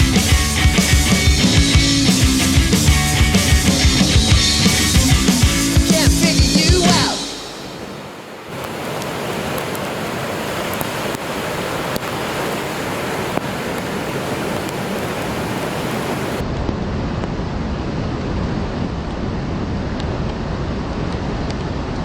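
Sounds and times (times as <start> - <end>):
ocean surf: 3.3 - 16.4
wind buffeting microphone: 6.9 - 16.4.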